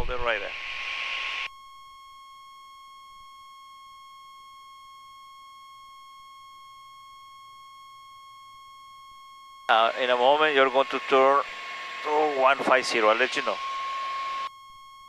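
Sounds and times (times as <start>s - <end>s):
high electronic tone: 9.2s - 15.0s.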